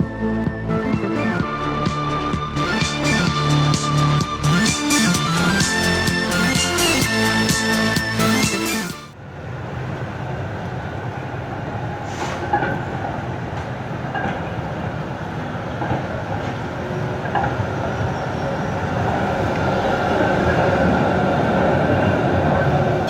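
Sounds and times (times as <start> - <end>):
music: 0.0 - 9.2
tram rumbling on rails: 9.4 - 23.0.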